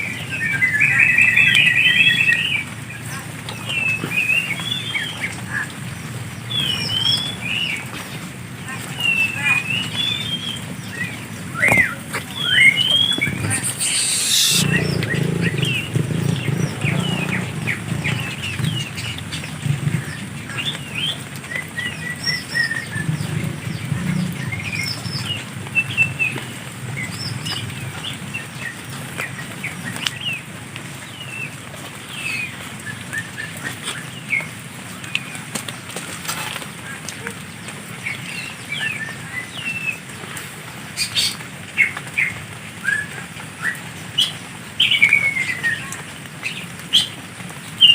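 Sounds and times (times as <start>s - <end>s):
birds chirping: 8.6s - 35.4s.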